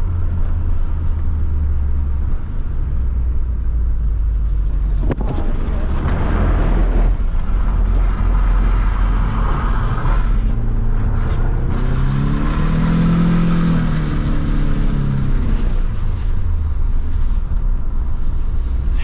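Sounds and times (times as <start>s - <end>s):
car engine rumbling and revving: 0.0s - 19.0s.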